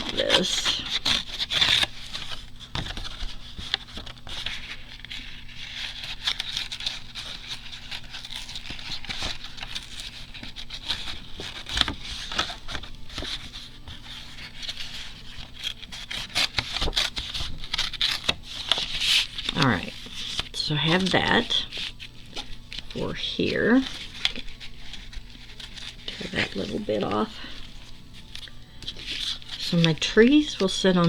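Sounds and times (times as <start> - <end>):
paper tearing and rustling: 0.0 - 31.0.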